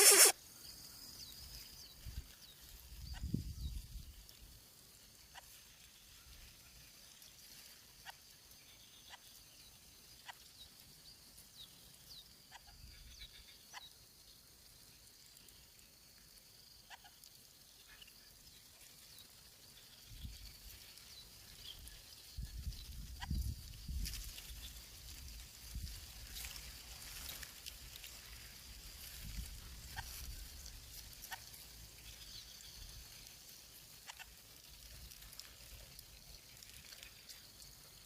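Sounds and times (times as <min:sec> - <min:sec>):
short chirps and clicks: 0:00.0 - 0:00.4.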